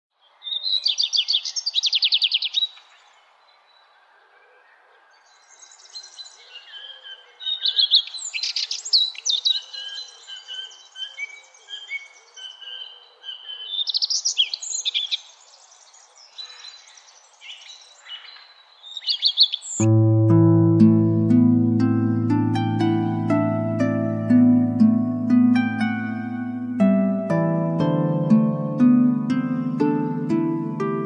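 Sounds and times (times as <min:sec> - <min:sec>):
birds chirping and whistling: 0:05.6 - 0:15.2, 0:16.4 - 0:19.9.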